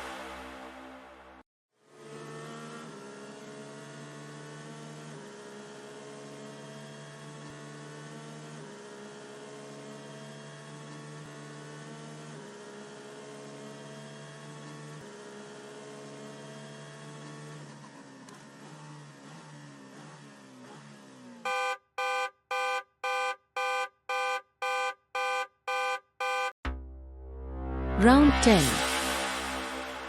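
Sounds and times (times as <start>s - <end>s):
droning synth chords: 0.0s - 1.4s, 26.6s - 30.0s.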